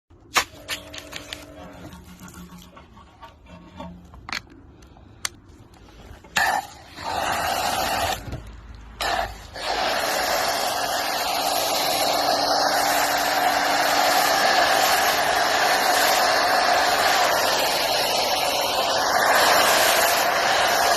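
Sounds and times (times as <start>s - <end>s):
car wash rushing hiss: 6.4s - 20.9s.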